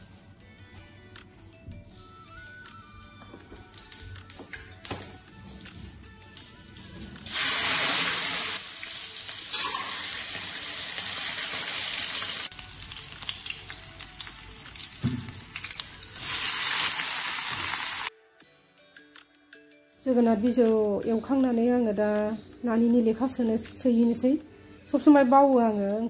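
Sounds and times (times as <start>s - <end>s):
food sizzling in hot oil: 7.2s - 18.1s.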